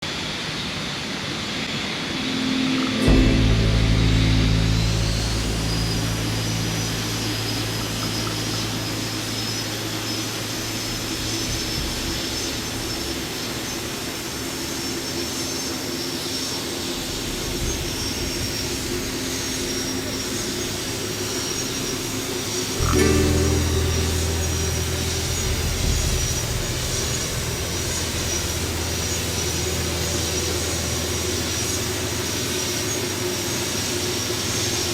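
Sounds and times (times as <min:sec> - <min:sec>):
thin high whine: 0:00.0 - 0:34.9.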